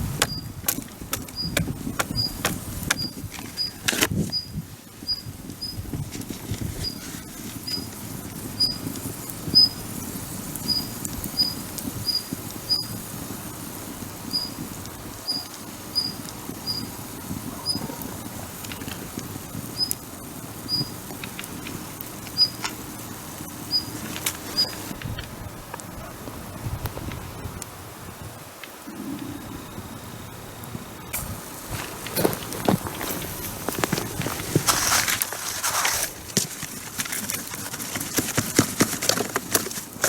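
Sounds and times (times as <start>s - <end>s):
campfire crackling and popping: 0.0s - 40.0s.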